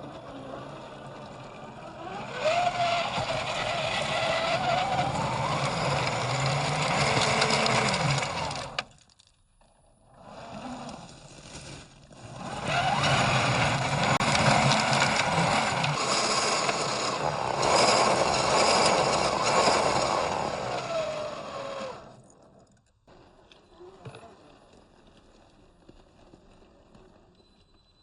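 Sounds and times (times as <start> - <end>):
toy truck electric motor whining: 0.0 - 8.9, 12.2 - 22.3.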